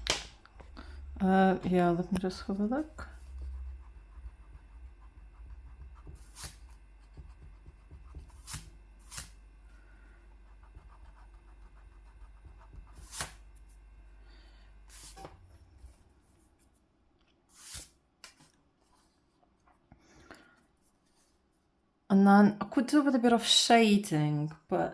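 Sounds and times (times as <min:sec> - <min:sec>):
low steady hum: 0:00.0 - 0:17.7.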